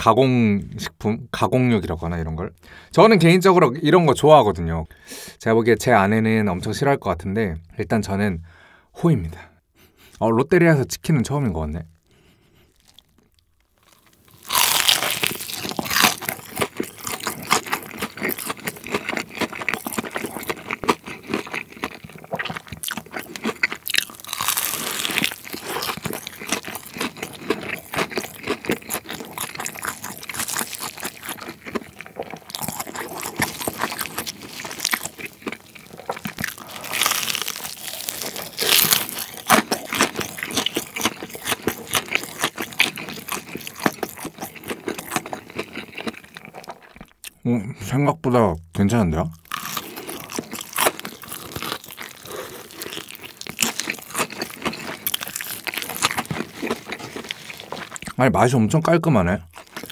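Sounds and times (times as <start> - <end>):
crunching and chewing fried chicken: 11.6 - 47.4, 49.2 - 58.2, 59.4 - 59.9.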